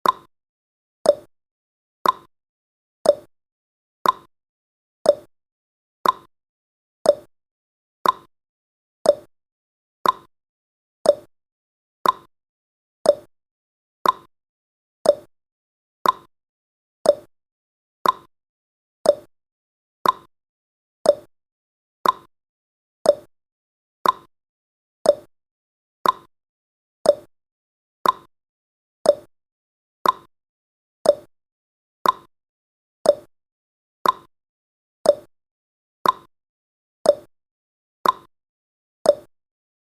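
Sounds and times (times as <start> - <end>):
clock ticking: 2.0 - 2.3, 4.0 - 4.3, 6.0 - 6.3, 8.0 - 8.3, 10.0 - 10.3, 12.0 - 12.3, 14.0 - 14.3, 15.1 - 15.3, 16.0 - 16.3, 17.1 - 17.3, 18.0 - 18.3, 19.1 - 19.3, 20.0 - 20.3, 21.1 - 21.3, 22.0 - 22.3, 24.0 - 24.3, 26.0 - 26.3, 28.0 - 28.3, 29.1 - 29.3, 30.0 - 30.3, 31.1 - 31.3, 32.0 - 32.3, 33.1 - 33.3, 34.0 - 34.3, 35.1 - 35.3, 36.0 - 36.3, 38.0 - 38.3, 39.1 - 39.3.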